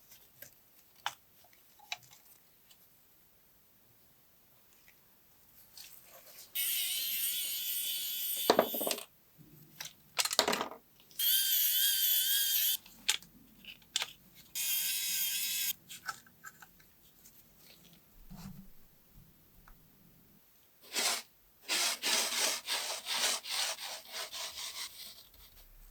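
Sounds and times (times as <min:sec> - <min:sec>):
mini drill whirring: 0:06.6 - 0:09.0, 0:11.2 - 0:12.8, 0:14.6 - 0:15.8.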